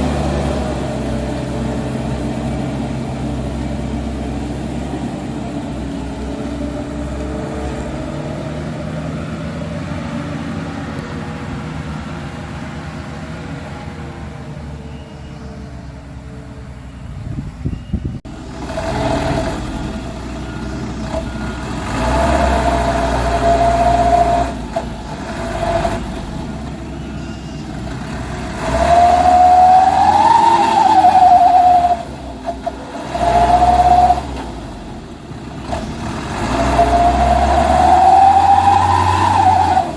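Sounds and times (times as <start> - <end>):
dump truck engine revving: 0.0 - 39.9
whining tone: 13.6 - 34.9, 35.6 - 39.9.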